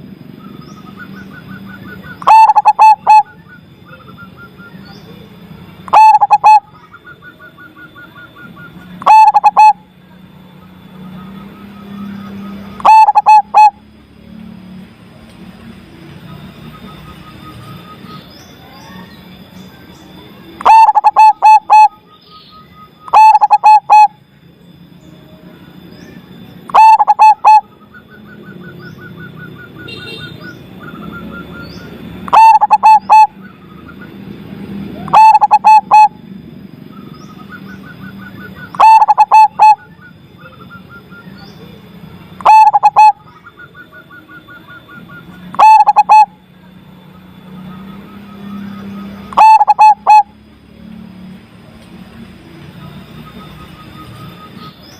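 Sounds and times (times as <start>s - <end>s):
dove cooing: 1.8s - 3.4s, 5.9s - 7.9s, 9.0s - 9.8s, 11.9s - 13.8s, 20.6s - 22.0s, 23.1s - 24.2s, 26.7s - 27.7s, 32.3s - 33.6s, 34.9s - 36.2s, 37.5s - 41.3s, 42.4s - 46.4s, 48.2s - 50.4s.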